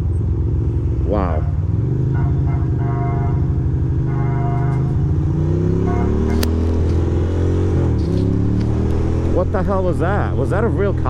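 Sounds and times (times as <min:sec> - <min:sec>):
motorcycle engine accelerating: 0:00.0 - 0:11.0
horn blasts: 0:01.3 - 0:07.0
sharp click: 0:06.2 - 0:07.0.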